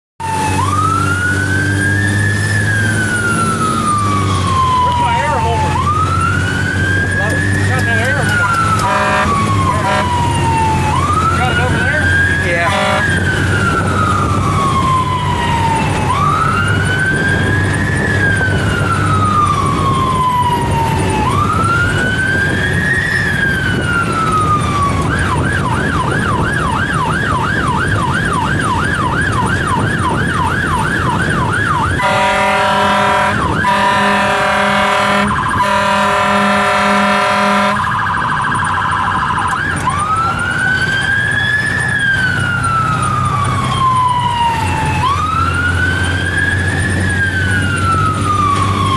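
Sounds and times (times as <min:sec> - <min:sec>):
fire engine siren: 0:00.2 - 0:48.9
truck engine rumble: 0:00.2 - 0:48.9
horn blast: 0:08.3 - 0:10.3, 0:11.5 - 0:13.3, 0:32.0 - 0:38.0.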